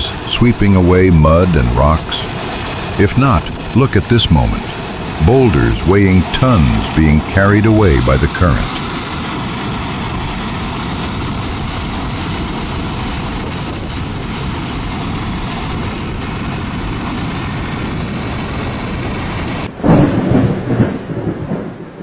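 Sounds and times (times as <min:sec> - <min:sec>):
loud deep rushing: 0:00.0 - 0:10.2
torrent of water rushing: 0:00.0 - 0:19.7.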